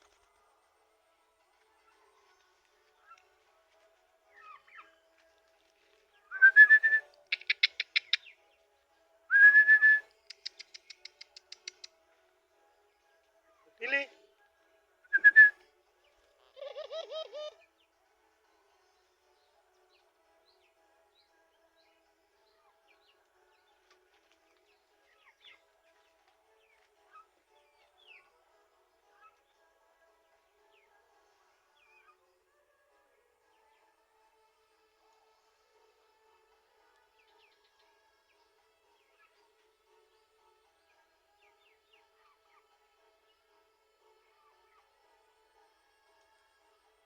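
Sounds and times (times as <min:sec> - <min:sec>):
small birds chirping: 0:05.8 - 0:08.6, 0:10.2 - 0:12.0.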